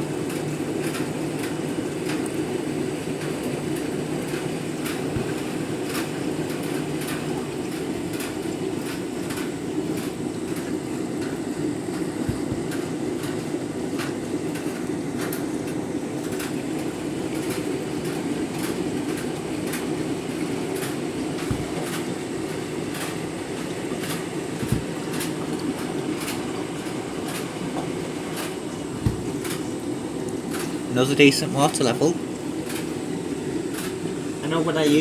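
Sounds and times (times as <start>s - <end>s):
water rushing into washing machine: 0.0s - 35.0s
soft thumps: 21.5s - 21.7s, 29.0s - 29.4s.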